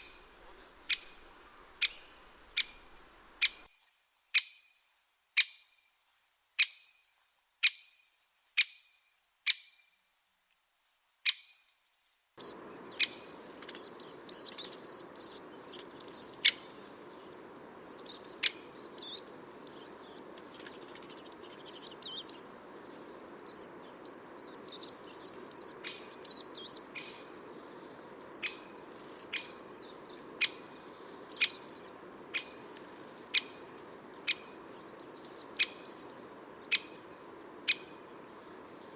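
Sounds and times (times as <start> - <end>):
sharp single bird calls: 0.0 - 3.7
twittering chorus of small birds: 0.0 - 3.7, 12.4 - 38.9.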